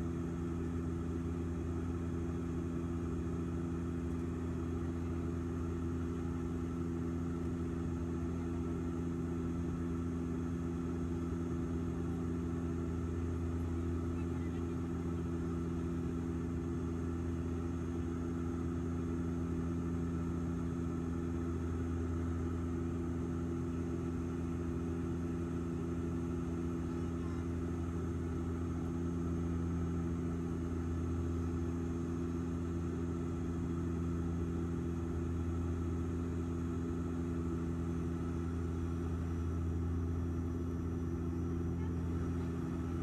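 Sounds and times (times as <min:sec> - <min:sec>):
airliner engines droning: 0:00.0 - 0:43.0.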